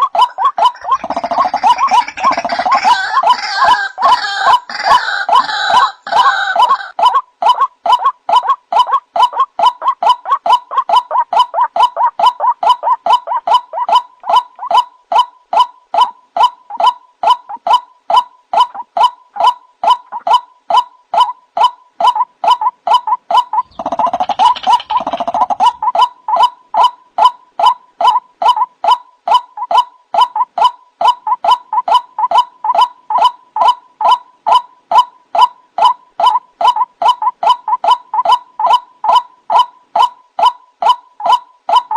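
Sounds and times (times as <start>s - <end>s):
rough gurgling call: 0.0s - 17.6s, 22.5s - 26.6s
waterhen calling: 0.0s - 41.9s.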